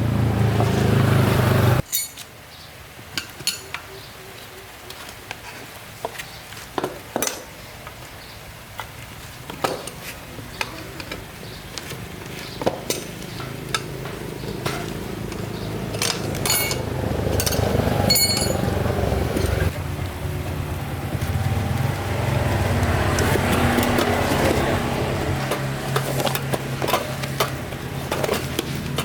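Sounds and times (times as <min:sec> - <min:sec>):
tools clinking on metal: 0:01.8 - 0:02.3, 0:03.2 - 0:03.8, 0:15.9 - 0:18.7
motorbike engine running: 0:12.0 - 0:29.0.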